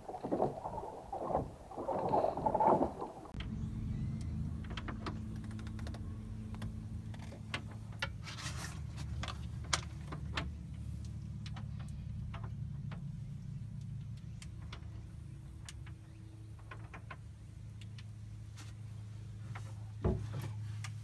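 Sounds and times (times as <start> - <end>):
boat engine droning: 0.0 - 21.0
light clicks and taps: 9.0 - 13.2.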